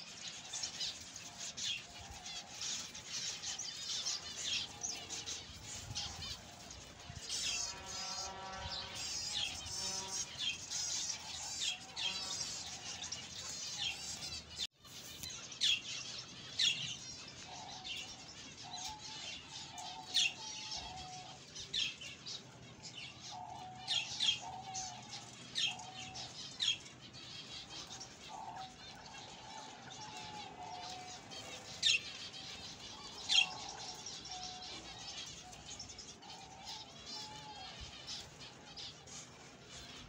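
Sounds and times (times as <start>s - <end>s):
small birds chirping: 0.0s - 40.0s
low repeated bird call: 7.3s - 14.7s.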